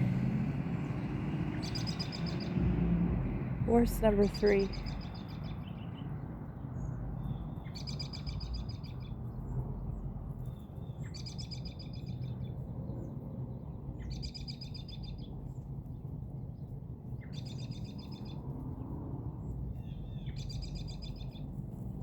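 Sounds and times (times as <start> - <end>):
low background rumble: 0.0 - 22.0
songbird trilling: 1.6 - 2.6, 4.2 - 5.8.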